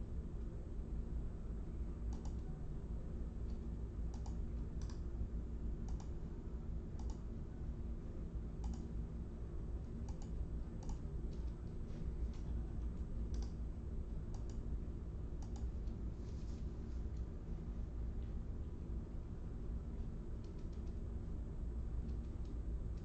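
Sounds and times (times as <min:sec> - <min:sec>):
steady low hum: 0:00.0 - 0:23.0
light sharp clicks: 0:02.1 - 0:02.5, 0:03.5 - 0:05.0, 0:05.9 - 0:06.2, 0:07.0 - 0:07.2, 0:08.6 - 0:08.9, 0:10.1 - 0:12.5, 0:13.3 - 0:13.6, 0:14.3 - 0:14.6, 0:15.4 - 0:16.0, 0:20.4 - 0:21.0, 0:22.0 - 0:23.0.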